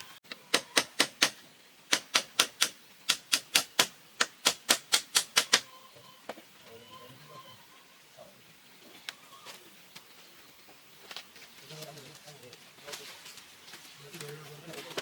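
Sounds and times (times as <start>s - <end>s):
hand tool striking wood: 0.5s - 5.7s.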